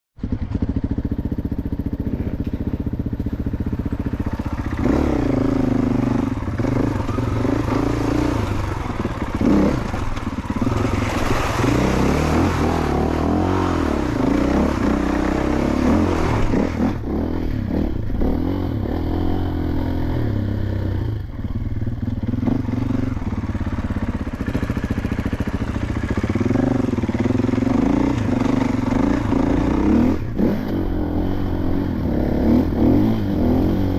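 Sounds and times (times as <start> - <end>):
dirt bike engine revving: 0.2 - 33.9.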